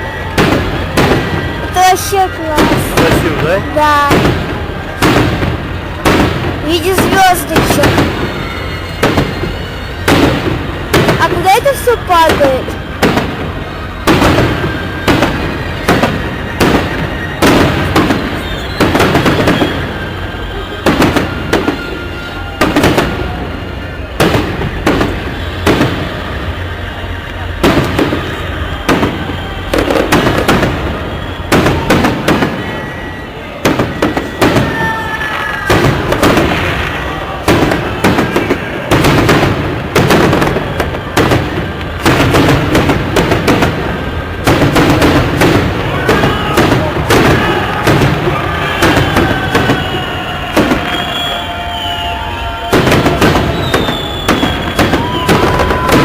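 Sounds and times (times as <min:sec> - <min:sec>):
fireworks bangs with echo: 0:00.0 - 0:56.0
whistling tone: 0:06.7 - 0:38.9, 0:40.3 - 0:42.3, 0:45.9 - 0:56.0.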